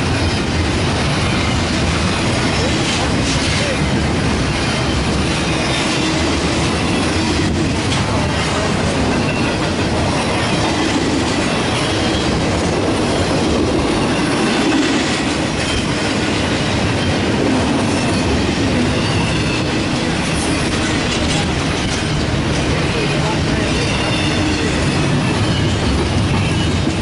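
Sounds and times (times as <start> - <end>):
train wheels rolling on rail: 0.0 - 27.0.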